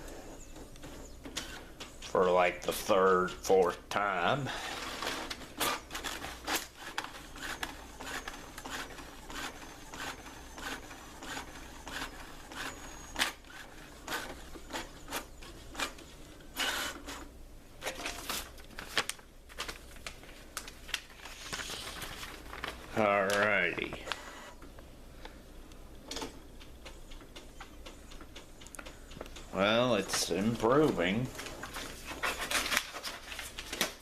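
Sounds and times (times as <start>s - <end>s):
printer clicking and whirring: 4.8s - 18.2s, 26.0s - 34.0s.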